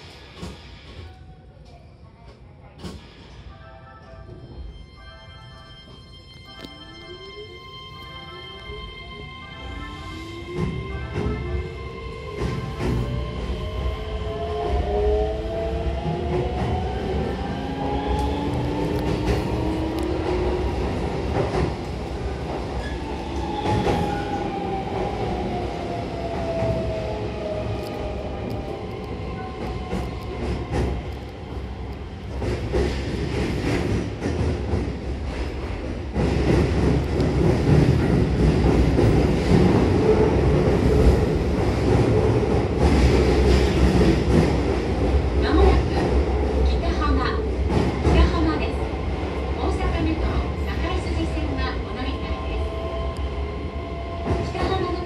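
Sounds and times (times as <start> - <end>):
wheels rumbling on rail: 10.6 - 52.8.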